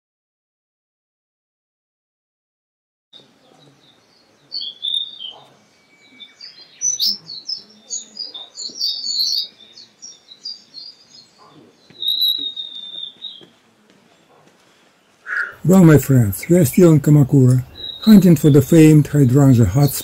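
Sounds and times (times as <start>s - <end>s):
birdsong chirps and twitters: 3.2s - 20.0s
long high whistled bird note: 15.3s - 15.6s.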